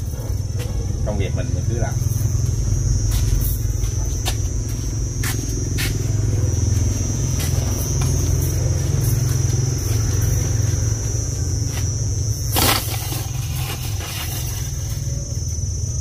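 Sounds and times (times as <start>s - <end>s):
high-pitched whine: 0.0s - 16.0s.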